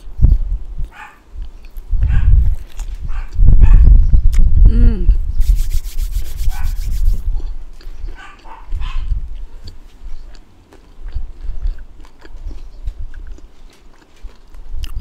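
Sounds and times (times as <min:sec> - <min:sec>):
close chewing of crunchy food: 0:00.0 - 0:03.5, 0:05.5 - 0:15.0
wind buffeting microphone: 0:00.0 - 0:10.3
mouth clicks: 0:04.3 - 0:10.4.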